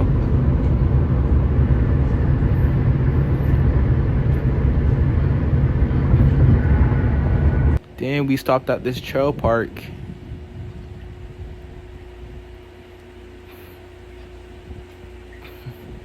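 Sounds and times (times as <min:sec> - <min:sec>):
car driving rumble: 0:00.0 - 0:07.8.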